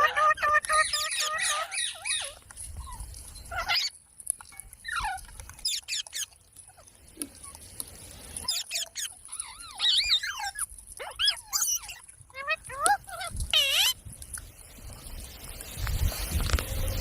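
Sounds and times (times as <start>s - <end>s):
parrot chirping and squawking: 0.0s - 4.0s, 4.8s - 6.8s, 8.3s - 14.0s.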